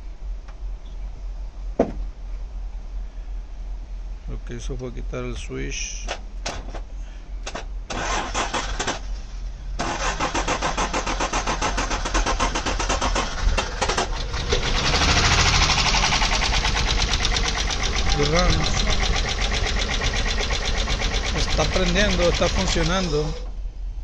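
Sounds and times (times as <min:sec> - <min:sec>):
car engine running: 0:06.0 - 0:23.6
starter cranking engine: 0:07.5 - 0:09.1, 0:09.8 - 0:23.5.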